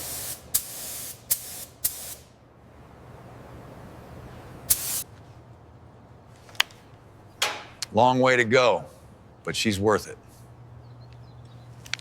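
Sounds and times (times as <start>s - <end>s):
hissing spray bursts: 0.0s - 2.3s, 4.7s - 5.1s
low steady hum: 2.3s - 12.0s.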